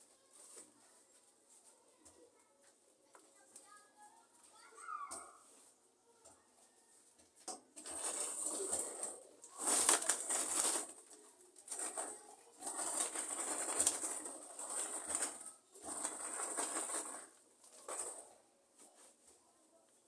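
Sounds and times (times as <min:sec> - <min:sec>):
potting soil rustling and scraping: 0:07.6 - 0:19.4.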